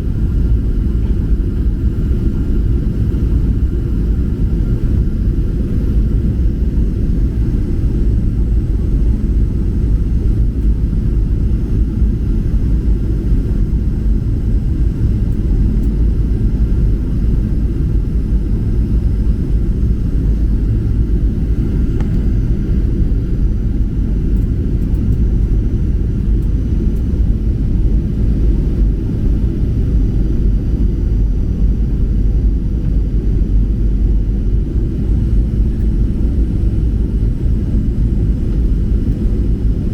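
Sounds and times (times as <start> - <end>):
airplane cabin rumble in flight: 0.0 - 39.9.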